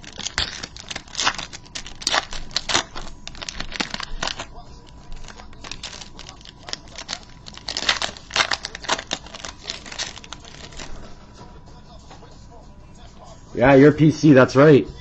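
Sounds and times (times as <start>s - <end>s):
trading cards and wrapper crinkling: 0.0s - 11.2s.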